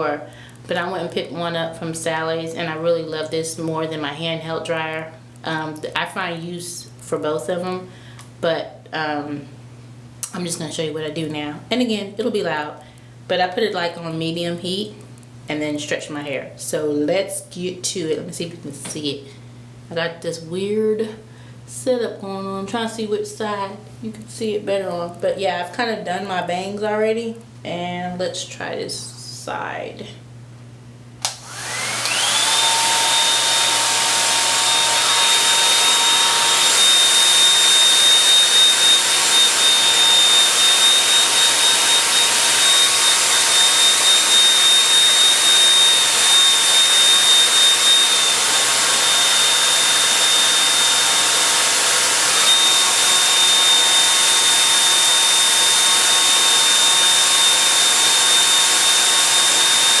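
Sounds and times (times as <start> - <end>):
hair dryer switch click: 31.2 - 32.4
hair dryer blowing: 31.2 - 60.0.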